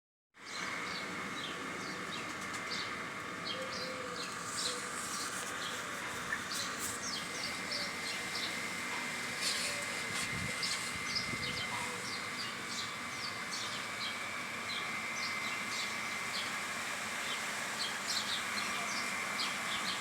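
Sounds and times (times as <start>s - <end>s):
birds chirping: 0.5s - 20.0s.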